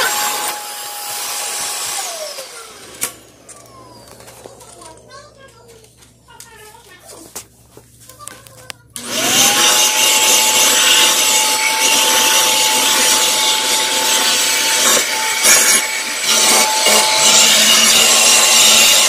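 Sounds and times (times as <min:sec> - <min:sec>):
vacuum suction on carpet: 0:00.0 - 0:05.0, 0:09.0 - 0:18.9
vacuum cleaner motor whine: 0:00.0 - 0:06.0, 0:09.0 - 0:19.0.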